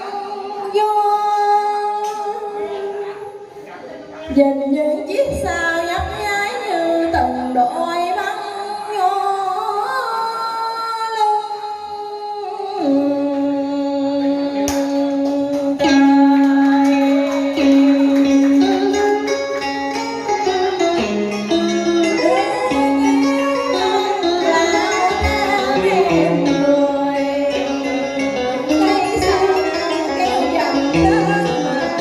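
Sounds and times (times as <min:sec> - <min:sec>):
instrumental accompaniment: 0:13.0 - 0:32.0.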